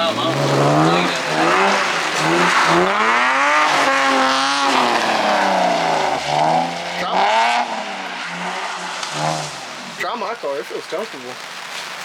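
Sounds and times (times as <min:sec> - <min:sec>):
car engine revving: 0:00.0 - 0:10.5
tire noise on wet pavement: 0:00.0 - 0:12.0.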